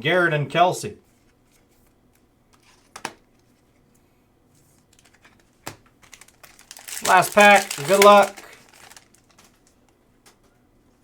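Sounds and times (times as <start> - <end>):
trading cards clicking and tapping: 7.0 - 8.5.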